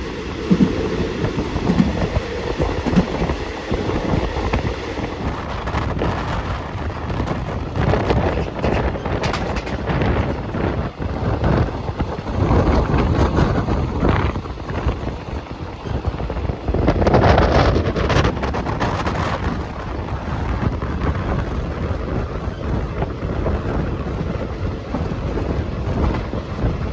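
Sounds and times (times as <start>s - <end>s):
dense rattle: 0.0s - 19.8s
train running on track: 0.0s - 26.9s
wind on microphone: 0.0s - 26.9s.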